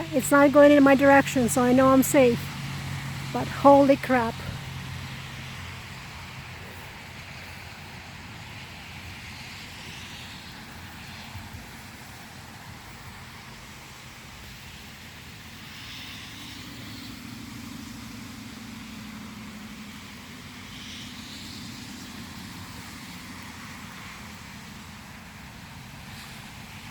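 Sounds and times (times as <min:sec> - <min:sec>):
engine drone passing: 0:00.0 - 0:14.2.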